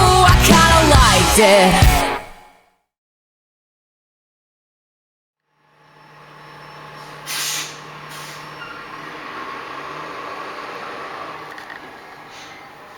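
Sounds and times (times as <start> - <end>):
garbage truck engine idling: 5.9 - 12.9
air brakes hissing: 6.8 - 12.9.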